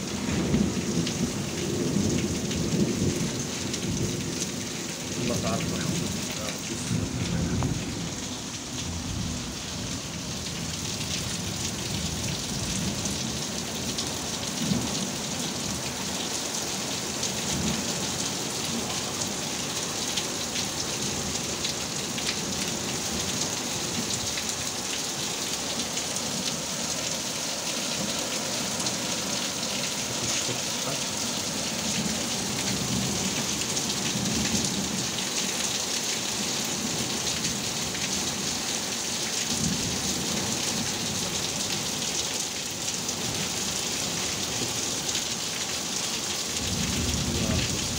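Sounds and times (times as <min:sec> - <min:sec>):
heavy rain falling: 0:00.0 - 0:47.9
thunder rumbling: 0:05.1 - 0:10.0.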